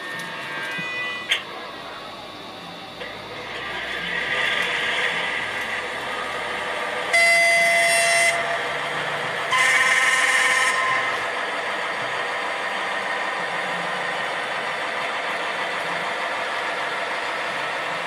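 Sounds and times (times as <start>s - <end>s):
model locomotive engine running: 0.0s - 18.0s
locomotive horn blasts: 0.5s - 1.4s, 7.1s - 8.7s, 9.5s - 11.2s.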